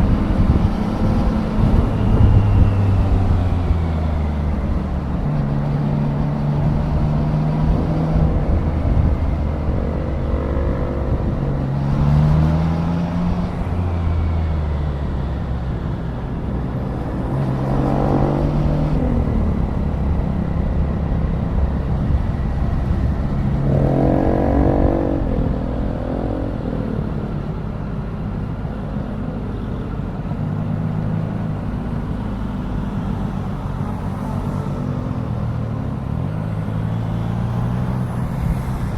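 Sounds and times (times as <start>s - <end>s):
wind and road noise: 0.0s - 38.9s
motorcycle engine revving: 21.6s - 27.6s.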